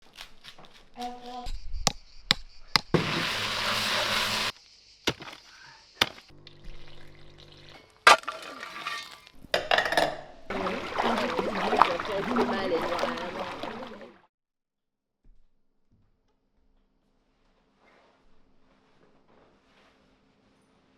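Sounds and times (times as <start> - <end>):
hiss: 2.9 - 4.7
kitchen clinks and knocks: 8.1 - 10.4.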